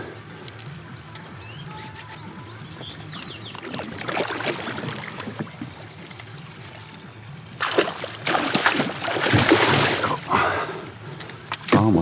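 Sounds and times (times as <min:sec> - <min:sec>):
fish thrashing water splashing: 0:03.6 - 0:05.7, 0:07.6 - 0:10.6.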